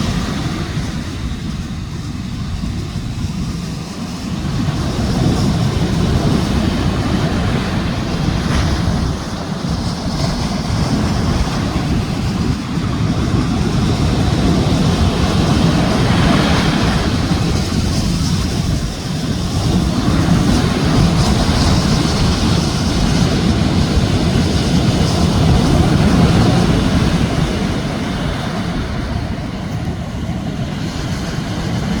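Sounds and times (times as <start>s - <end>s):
waves breaking on beach: 0.0s - 32.0s.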